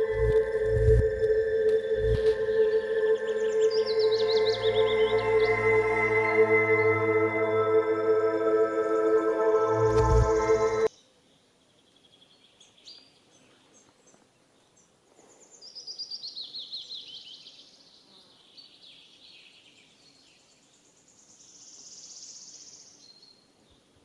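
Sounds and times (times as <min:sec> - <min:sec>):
birds chirping: 0:00.0 - 0:10.9
high buzzing: 0:00.0 - 0:10.9
high falling bird notes: 0:00.0 - 0:10.9.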